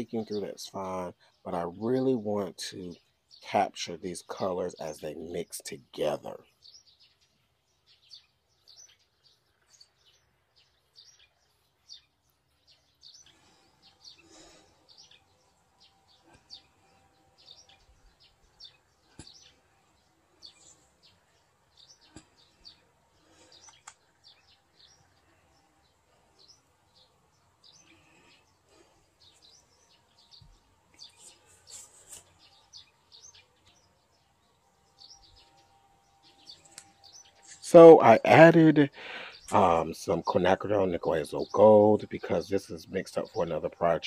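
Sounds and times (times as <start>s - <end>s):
faint small birds chirping: 0.0s - 44.0s
soft clicks: 23.6s - 24.0s.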